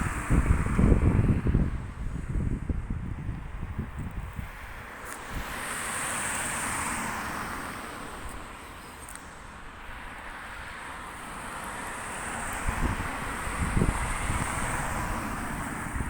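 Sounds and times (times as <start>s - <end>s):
vehicles passing by: 0.0s - 16.0s.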